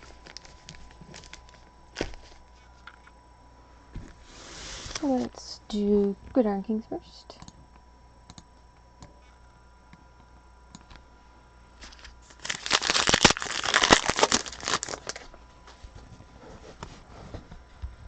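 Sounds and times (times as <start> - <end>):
wrapper torn open and crinkled: 0.0 - 2.1, 11.8 - 15.4.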